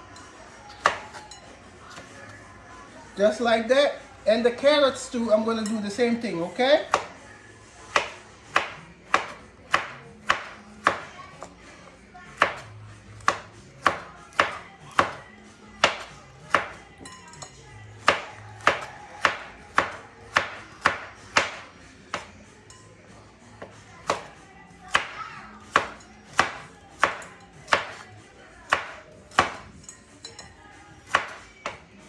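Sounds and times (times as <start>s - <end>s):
knife chopping on cutting board: 0.7s - 1.2s, 6.8s - 7.2s, 7.9s - 11.5s, 12.3s - 15.2s, 15.8s - 16.8s, 18.0s - 22.3s, 23.6s - 29.8s, 31.0s - 31.8s.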